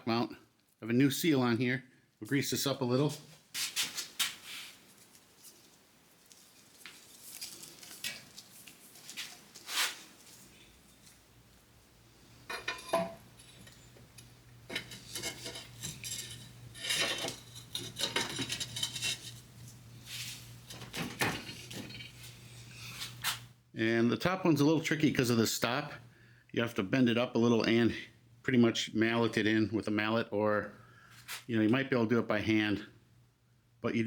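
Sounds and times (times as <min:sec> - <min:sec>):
low steady hum: 0:10.2 - 0:34.0
steel parts clinking and knocking: 0:12.4 - 0:19.5, 0:20.7 - 0:22.3.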